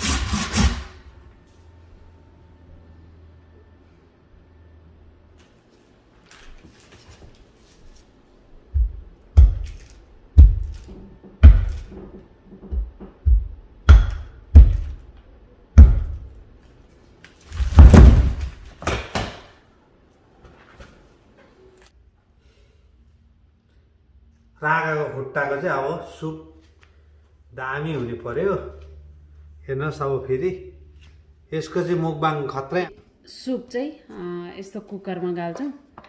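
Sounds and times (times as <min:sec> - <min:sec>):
heavy thuds: 0:17.6 - 0:18.7.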